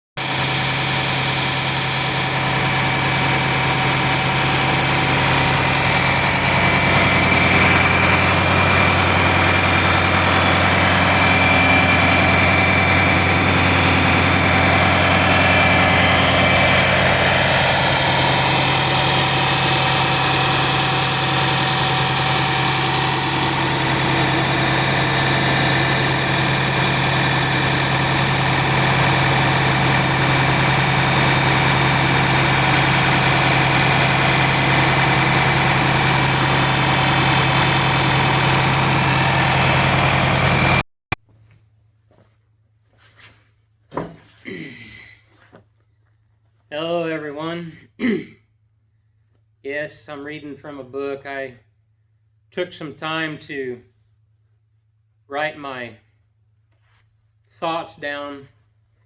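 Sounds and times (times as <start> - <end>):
engine idling: 0.2 - 40.8
deeper low engine note: 2.2 - 40.8.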